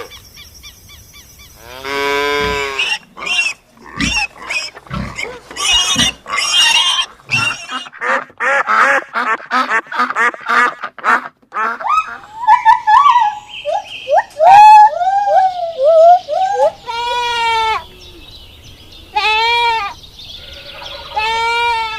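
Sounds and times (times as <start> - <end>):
loud harsh animal call: 1.6 - 7.9, 19.1 - 21.9
sliding animal calls: 1.8 - 7.9.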